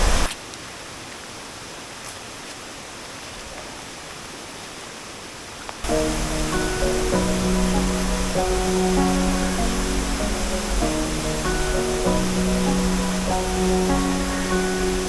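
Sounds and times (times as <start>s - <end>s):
rushing river water: 0.0s - 15.0s
background music: 5.8s - 15.0s.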